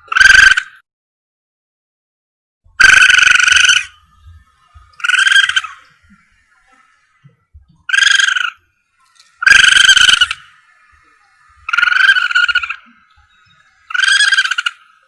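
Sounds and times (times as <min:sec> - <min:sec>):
animal lure call: 0:00.0 - 0:00.8, 0:02.8 - 0:15.0.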